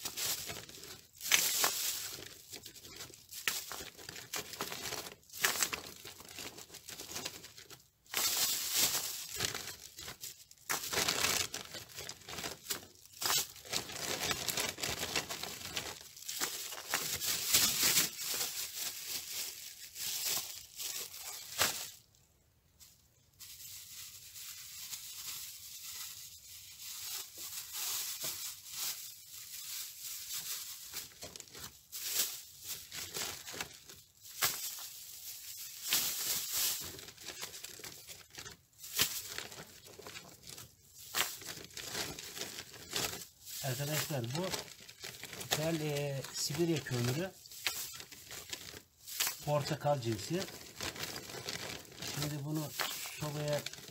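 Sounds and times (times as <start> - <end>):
plastic bags rustling: 0.0 - 53.9
coal lumps loaded into bags: 35.7 - 53.9.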